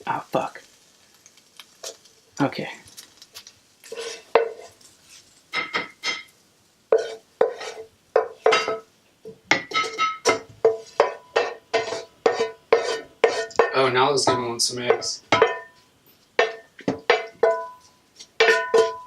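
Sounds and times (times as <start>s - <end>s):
utensil striking ringing bowl: 11.0s - 15.8s, 16.4s - 19.0s.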